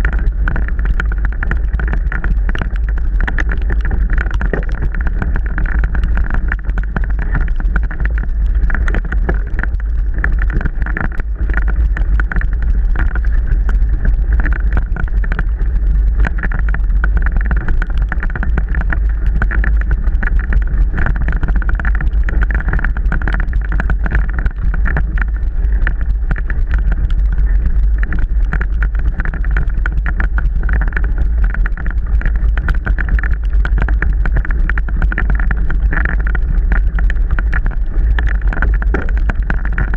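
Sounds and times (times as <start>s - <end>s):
bike rattling and knocking: 0.0s - 15.0s, 37.9s - 39.9s
wind on microphone: 0.0s - 39.9s.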